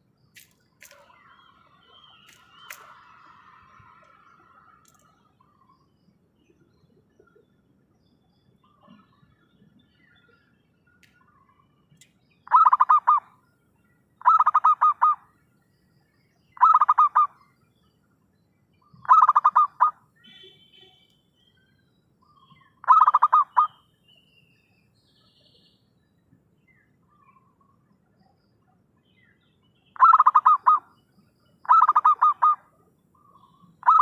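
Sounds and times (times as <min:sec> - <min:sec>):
faint high chirp: 0:00.0 - 0:34.0
dove cooing: 0:19.1 - 0:19.9, 0:22.8 - 0:23.7, 0:30.0 - 0:30.8, 0:31.7 - 0:32.6.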